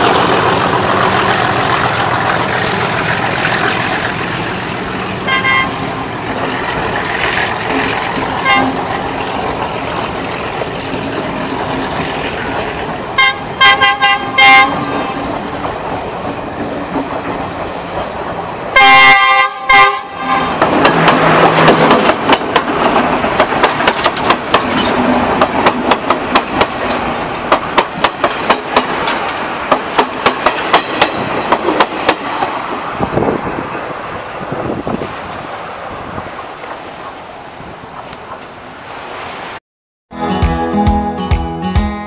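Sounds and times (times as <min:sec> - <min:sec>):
train wheels clicking over rail joints: 0:00.0 - 0:05.3, 0:20.5 - 0:32.9
train horn blasts: 0:05.2 - 0:05.9, 0:08.4 - 0:08.8, 0:13.2 - 0:15.2, 0:18.8 - 0:20.6.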